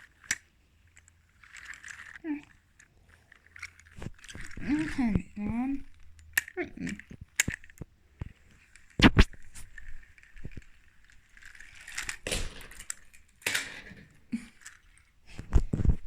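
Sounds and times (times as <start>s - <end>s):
handling clicks and knocks: 2.8s - 16.0s.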